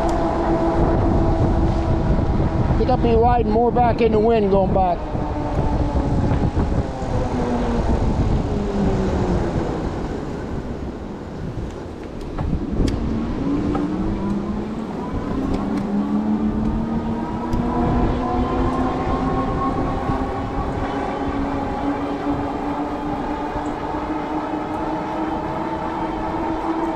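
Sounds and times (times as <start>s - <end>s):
wind buffeting microphone: 0.0s - 26.9s
electric motor whine: 12.5s - 26.9s.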